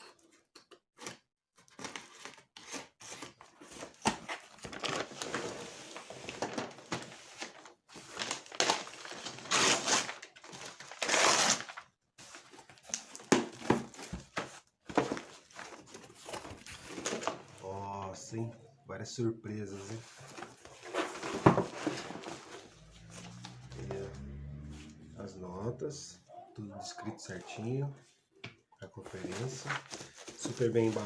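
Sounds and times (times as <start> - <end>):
packaging crinkling and rustling: 1.7 - 17.6, 20.0 - 23.8, 29.1 - 31.0.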